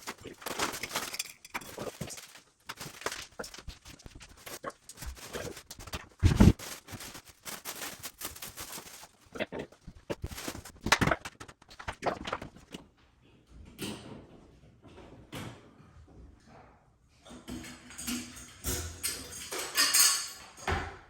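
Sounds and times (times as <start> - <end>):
cardboard box rustling: 0.0 - 9.3, 10.1 - 10.8.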